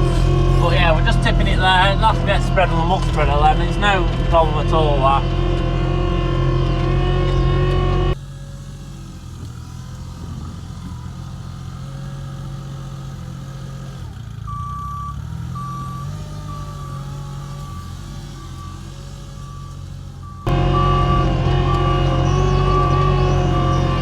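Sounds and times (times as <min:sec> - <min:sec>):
reversing alarm beeping: 0:00.0 - 0:08.2, 0:14.5 - 0:24.0
loader diesel engine running: 0:00.0 - 0:24.0.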